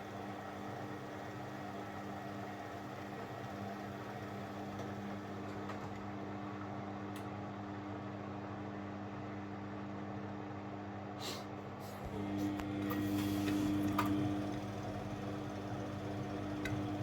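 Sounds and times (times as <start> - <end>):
washing machine drain pump humming: 0.0 - 8.4, 11.8 - 17.0.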